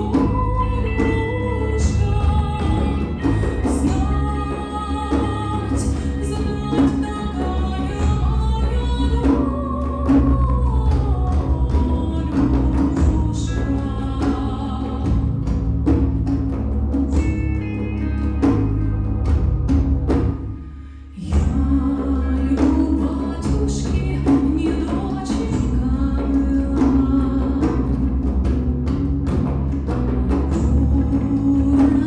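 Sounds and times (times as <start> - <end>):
woman singing: 0.0 - 15.8, 21.1 - 28.6, 30.1 - 32.0
hand percussion: 0.0 - 32.0.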